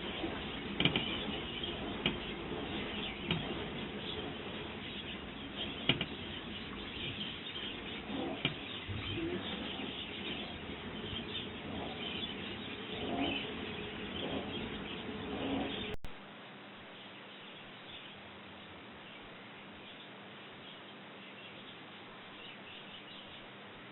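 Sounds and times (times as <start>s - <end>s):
small birds chirping: 0.0s - 16.0s, 16.9s - 23.6s.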